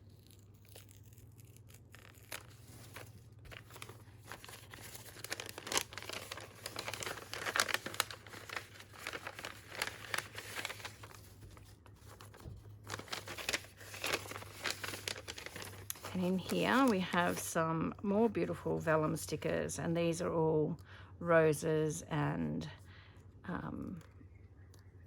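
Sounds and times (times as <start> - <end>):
paper packaging crinkling and tearing: 0.0 - 17.6.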